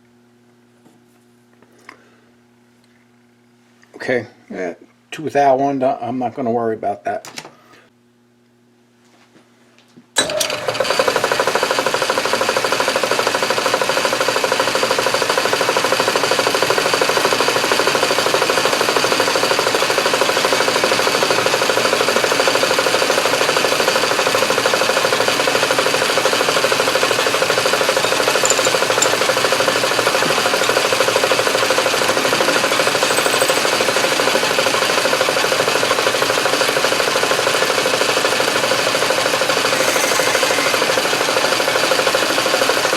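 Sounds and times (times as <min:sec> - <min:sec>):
metal lathe whirring: 0:18.2 - 0:42.8.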